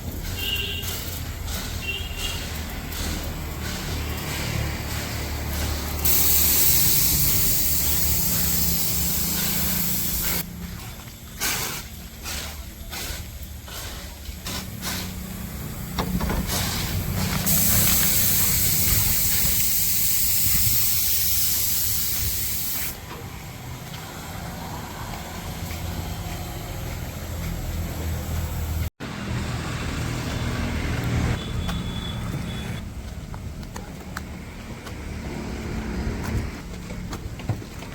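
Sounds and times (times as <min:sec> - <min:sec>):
pressure washer spray hissing: 0:00.1 - 0:10.5, 0:11.4 - 0:13.4, 0:14.4 - 0:23.0.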